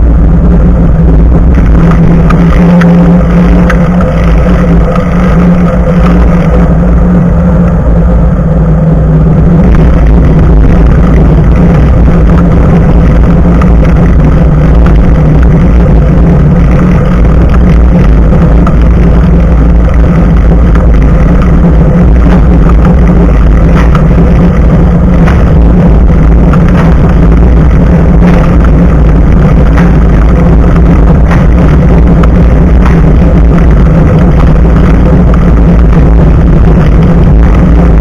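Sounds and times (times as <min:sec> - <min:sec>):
bicycle road rumble: 0:00.0 - 0:38.0
wind noise: 0:00.0 - 0:38.0.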